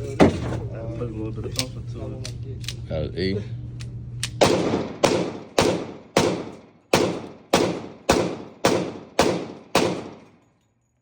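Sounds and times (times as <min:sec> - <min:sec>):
pistol shots with echo: 0:04.4 - 0:10.4.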